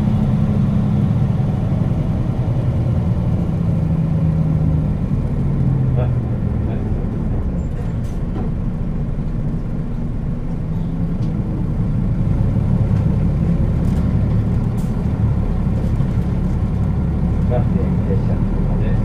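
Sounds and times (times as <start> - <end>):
bus diesel engine drone: 0.0 - 19.0.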